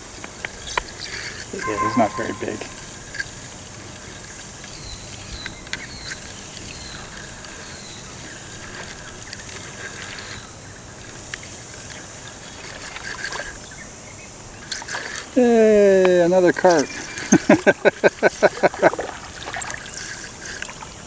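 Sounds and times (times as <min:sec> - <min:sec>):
faint clicks: 0:00.0 - 0:13.6, 0:14.6 - 0:21.0
steady background hiss: 0:00.0 - 0:21.0
short high chirps: 0:01.6 - 0:03.0.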